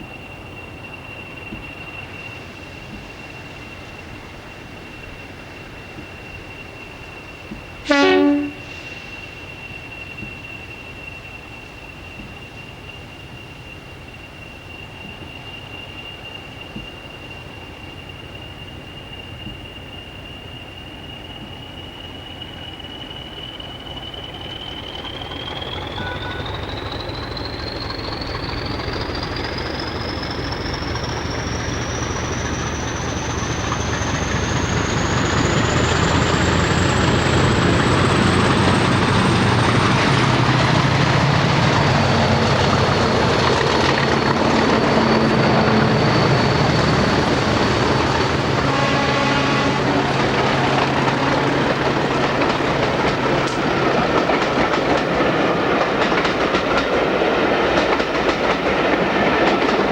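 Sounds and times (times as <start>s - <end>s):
diesel train engine: 0.0s - 59.9s
wheels clicking over rail joints: 24.6s - 59.9s
high whine rising in pitch: 30.5s - 53.6s.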